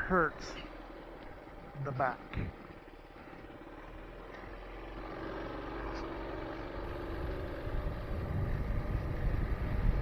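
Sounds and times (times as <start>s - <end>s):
mini bike engine running: 0.0s - 10.0s
low rumble: 5.9s - 10.0s.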